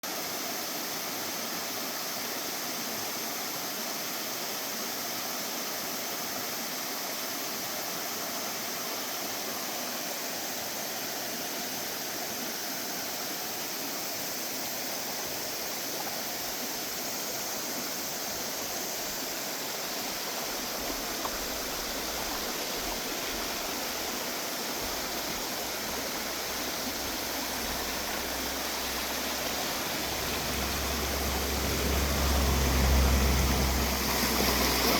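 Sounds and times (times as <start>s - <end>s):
stream water rushing: 0.0s - 34.9s
low rumble: 29.6s - 34.9s.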